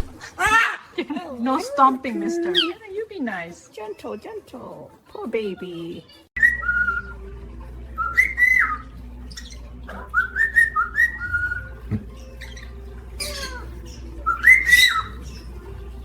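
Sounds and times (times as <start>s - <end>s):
parrot squawks: 0.2s - 1.0s, 2.5s - 2.8s, 6.4s - 7.2s, 7.9s - 15.7s
parrot whistling: 2.2s - 2.8s, 6.4s - 16.0s.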